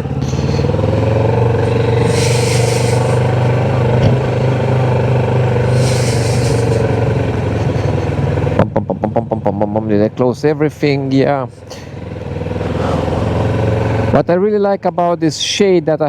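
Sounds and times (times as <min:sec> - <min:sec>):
motorcycle engine idling: 0:00.0 - 0:14.3
short hissing rushes: 0:01.7 - 0:03.7, 0:05.6 - 0:07.1.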